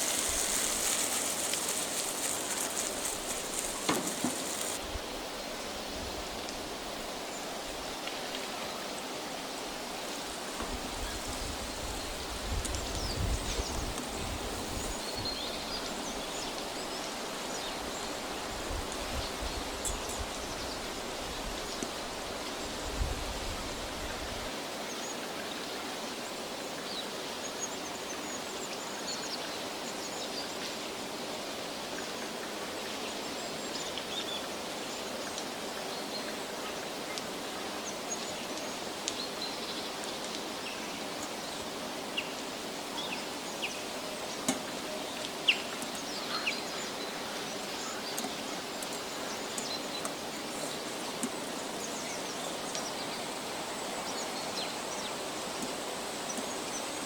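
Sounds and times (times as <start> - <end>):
small birds chirping: 0.0 - 4.8, 43.0 - 57.0
steady background hiss: 0.0 - 57.0.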